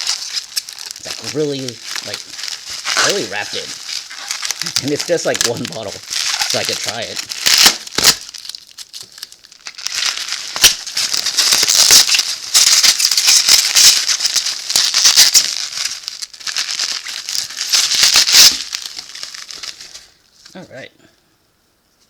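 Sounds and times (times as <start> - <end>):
packing wrap crinkling: 0.0 - 20.8.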